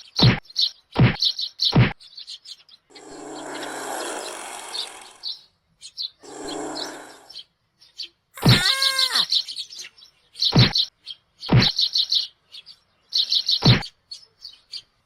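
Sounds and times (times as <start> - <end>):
small birds chirping: 0.0 - 15.0
sharp knocks: 1.0 - 1.2, 10.6 - 10.8, 11.5 - 11.8, 13.6 - 13.8.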